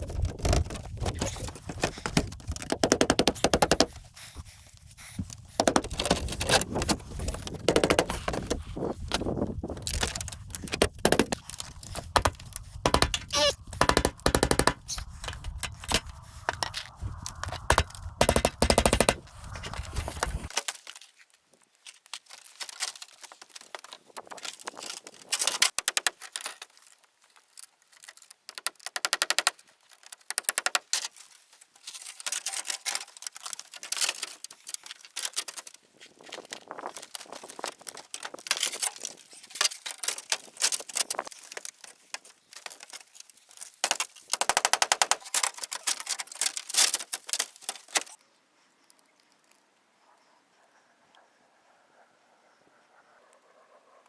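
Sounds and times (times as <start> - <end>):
rapid clatter of knocks: 0.0 - 4.0, 9.8 - 20.5.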